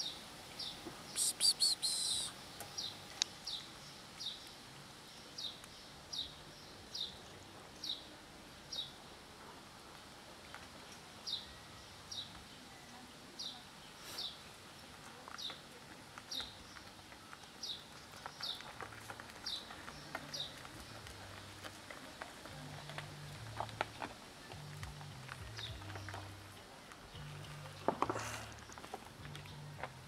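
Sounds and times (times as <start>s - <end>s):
small bird chirping: 0.0s - 4.6s
cats chewing food: 15.0s - 30.0s.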